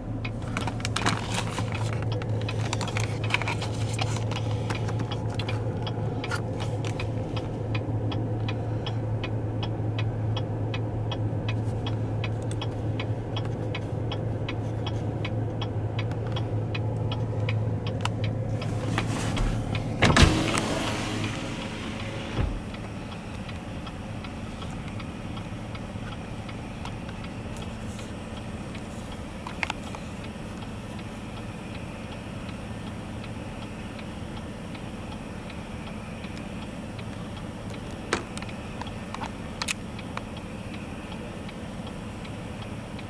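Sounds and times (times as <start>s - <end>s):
car engine idling: 0.0s - 43.0s.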